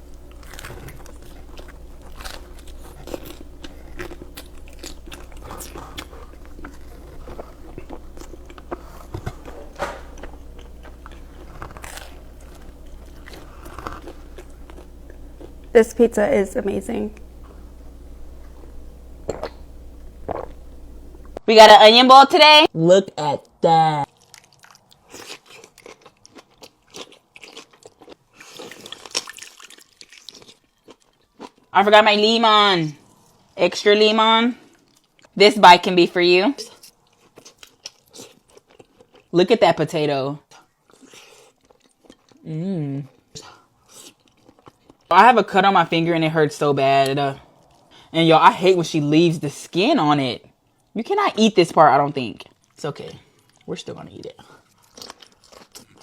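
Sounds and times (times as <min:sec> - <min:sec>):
pizza being bitten and chewed: 0:00.0 - 0:15.7, 0:24.1 - 0:31.7, 0:36.6 - 0:39.4, 0:40.5 - 0:45.1, 0:52.4 - 0:56.0.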